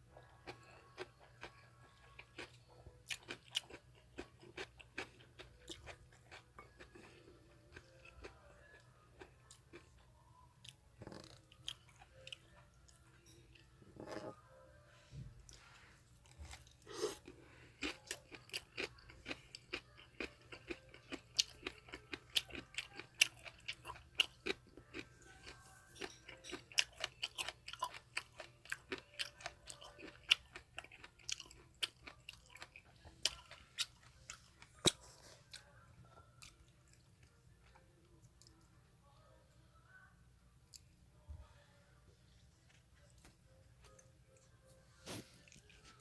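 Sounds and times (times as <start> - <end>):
chewing noodles: 0.2 - 14.4, 15.5 - 37.8.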